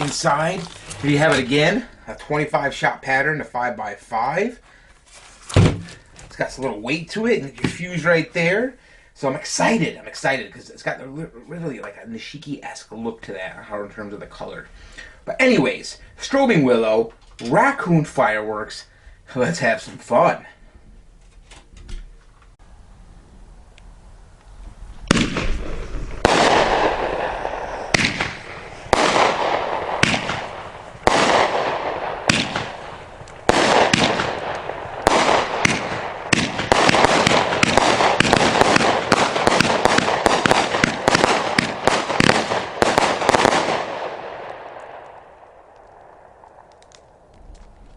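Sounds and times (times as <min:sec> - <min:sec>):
crackling firework tails: 0:00.0 - 0:21.0, 0:22.1 - 0:47.9
firework cake shots: 0:25.1 - 0:47.4.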